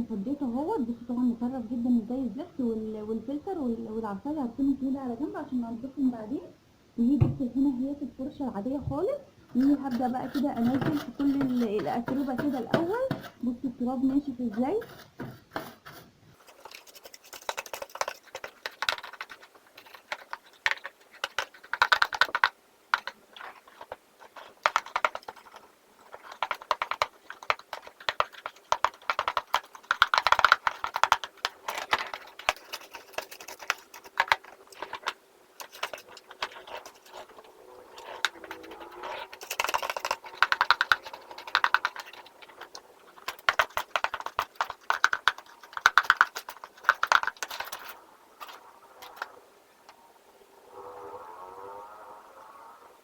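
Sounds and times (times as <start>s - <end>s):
brush bristles scrubbing: 9.6s - 13.4s, 14.5s - 49.3s.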